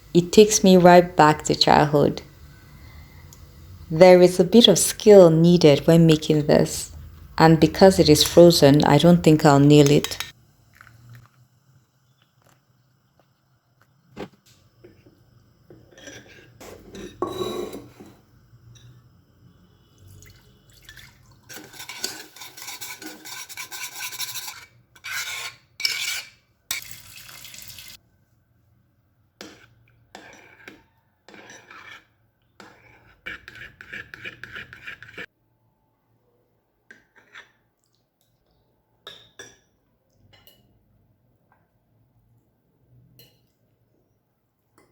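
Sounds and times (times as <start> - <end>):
spoon scraping in a bowl: 7.7 - 10.4, 15.7 - 19.0, 21.5 - 26.9, 29.4 - 35.3, 37.1 - 37.6
dishes clinking: 15.8 - 19.0
water being poured: 20.0 - 21.5, 26.8 - 28.0.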